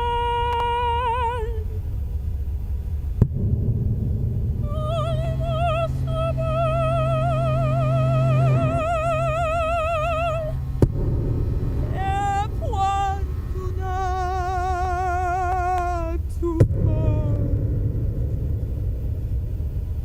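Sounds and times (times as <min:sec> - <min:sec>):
woman singing operatic high note: 0:00.0 - 0:01.8, 0:04.6 - 0:10.8, 0:11.9 - 0:17.4
low electronic drone: 0:00.0 - 0:20.0
sharp clicks: 0:00.4 - 0:01.0.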